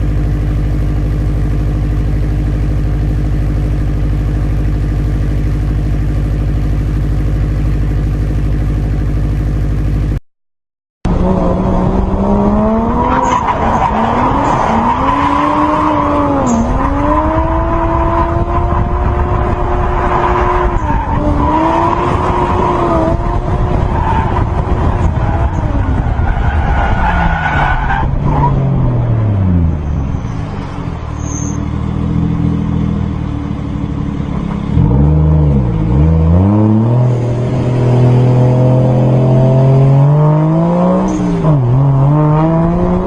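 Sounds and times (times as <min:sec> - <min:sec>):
car engine idling: 0:00.0 - 0:10.2, 0:20.6 - 0:34.9
car engine revving: 0:11.1 - 0:43.0
tyre squeal: 0:13.0 - 0:17.3, 0:29.8 - 0:31.8.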